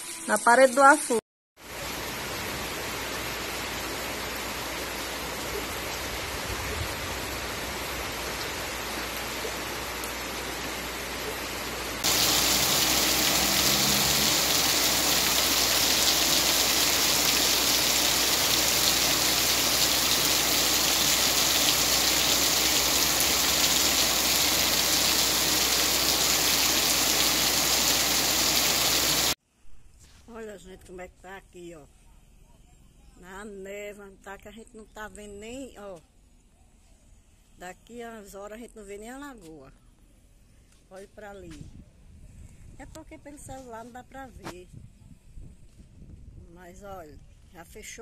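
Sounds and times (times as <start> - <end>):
heavy downpour hiss: 1.6 - 29.4
rain falling: 1.6 - 29.4.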